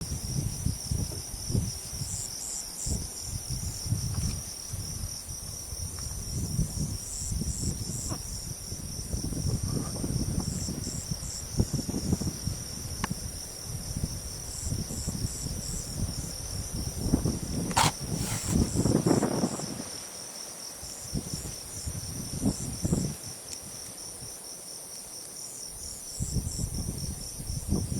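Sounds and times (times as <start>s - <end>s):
wind on microphone: 0.0s - 20.1s, 20.9s - 24.4s, 25.8s - 27.9s
insect chirps: 0.0s - 27.9s
insects trilling: 0.0s - 27.9s
sharp click: 17.7s - 18.6s.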